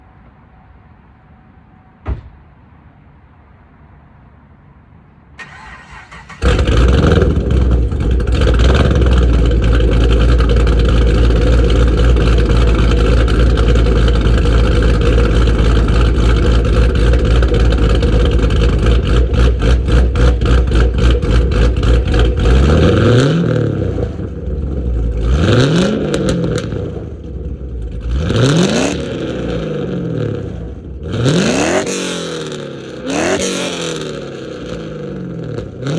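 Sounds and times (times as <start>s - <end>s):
engine cranking: 5.4s - 7.4s
engine revving: 5.4s - 35.9s
car engine running: 6.4s - 31.4s.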